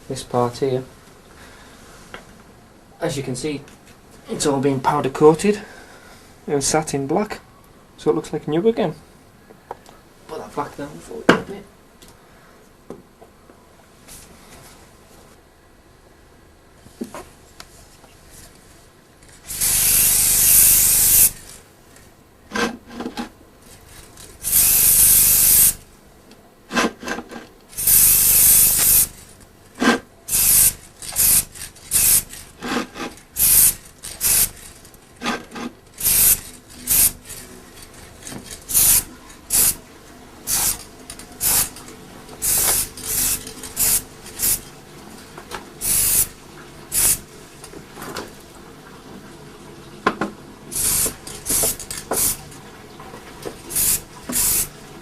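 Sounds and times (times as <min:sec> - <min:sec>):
aerosol can spraying: 0:19.5 - 0:21.5, 0:24.4 - 0:25.8, 0:27.7 - 0:34.8, 0:36.0 - 0:37.4, 0:38.5 - 0:39.8, 0:40.4 - 0:41.8, 0:42.4 - 0:44.6, 0:45.8 - 0:47.2, 0:50.7 - 0:52.4, 0:53.7 - 0:54.7.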